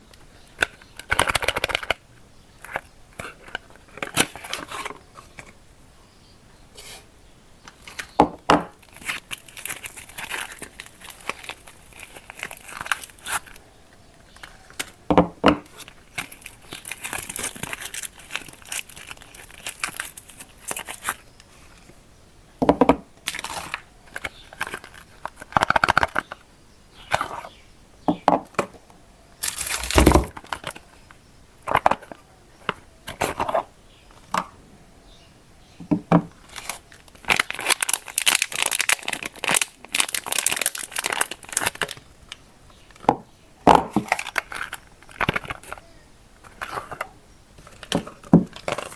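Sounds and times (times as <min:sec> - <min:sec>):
wrappers tearing and crinkling: 0:08.8 - 0:13.6, 0:15.7 - 0:21.3, 0:29.4 - 0:30.8, 0:36.4 - 0:42.1, 0:44.0 - 0:45.8
heavy thuds: 0:29.7 - 0:30.3.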